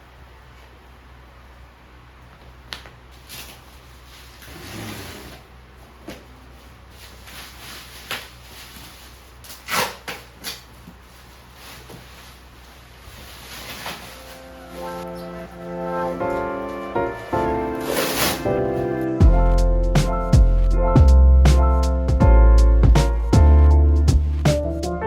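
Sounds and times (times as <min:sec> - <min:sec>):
short rustle: 0:10.7 - 0:19.2.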